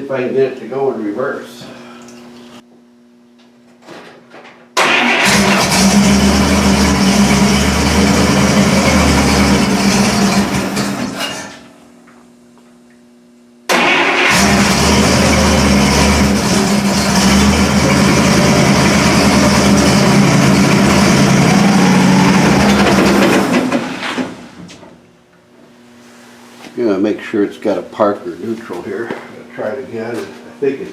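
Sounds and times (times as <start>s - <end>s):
car engine running: 5.2s - 11.2s, 14.3s - 24.8s.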